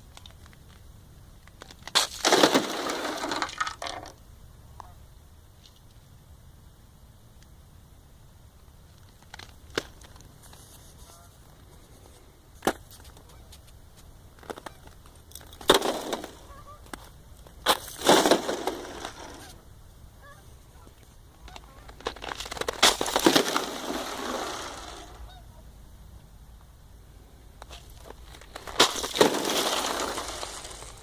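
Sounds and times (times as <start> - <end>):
sharp ice cracks: 1.4 - 4.1, 14.4 - 19.6, 21.5 - 25.2, 27.6 - 31.0
ice floes grinding and crunching: 1.6 - 4.0, 15.3 - 19.6, 21.5 - 25.2, 27.6 - 31.0.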